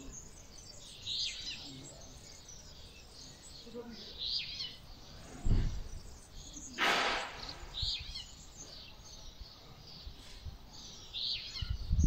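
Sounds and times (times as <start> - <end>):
small birds chirping: 0.0 - 12.0
wind buffeting microphone: 5.1 - 8.7, 11.5 - 12.0
brief rushing noise: 6.8 - 7.8.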